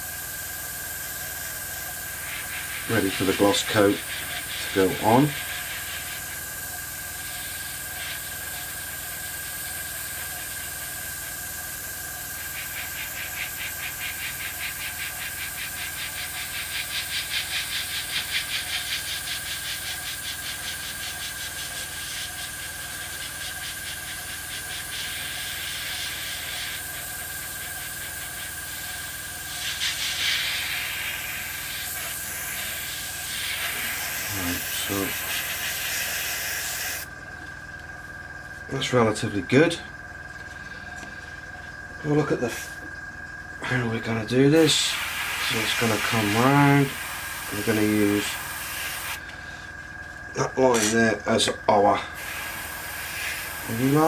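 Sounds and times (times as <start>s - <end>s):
airbrush spraying air hiss: 0.0s - 37.1s, 44.6s - 49.2s, 52.1s - 54.0s
thin steady high tone: 0.9s - 16.8s, 19.0s - 37.1s, 38.4s - 54.0s.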